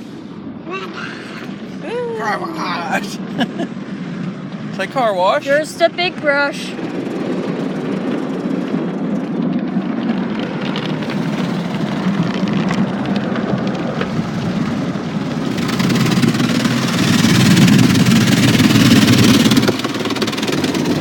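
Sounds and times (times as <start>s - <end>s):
car wash brushes and water spray: 9.8s - 21.0s.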